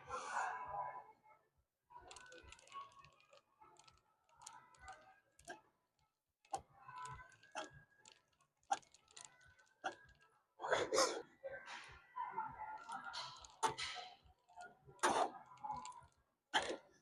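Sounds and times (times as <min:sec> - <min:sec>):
faint clicks and clinks: 0:02.0 - 0:10.4.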